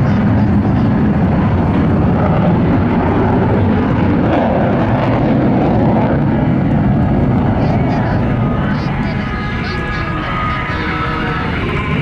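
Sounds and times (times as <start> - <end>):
fighter jet engine rumble: 0.0 - 12.0.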